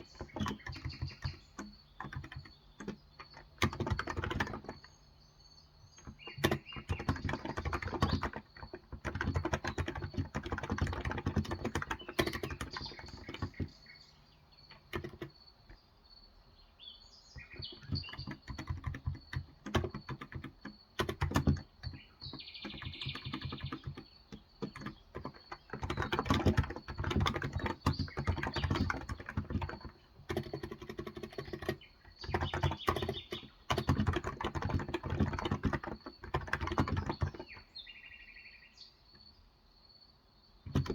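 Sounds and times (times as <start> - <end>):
keyboard typing: 0.0 - 15.8, 17.4 - 37.7, 40.6 - 40.9
birds chirping: 0.0 - 39.5, 40.3 - 40.9.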